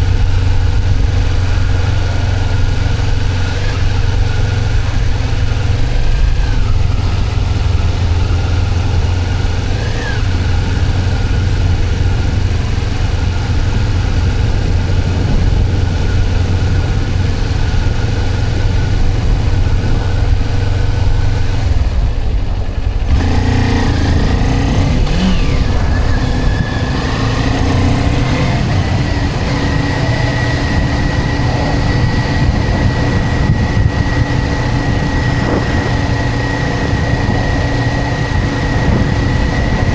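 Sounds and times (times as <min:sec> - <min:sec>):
high-pitched whine: 0:00.0 - 0:39.9
motorcycle engine running: 0:00.0 - 0:39.9.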